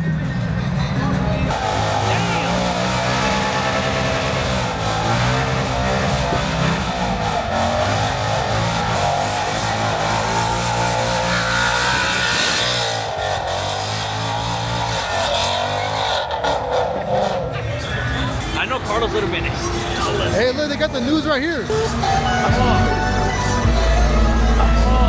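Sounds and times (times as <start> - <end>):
car engine revving high: 0.0 - 25.0
loud rushing noise: 1.4 - 20.9.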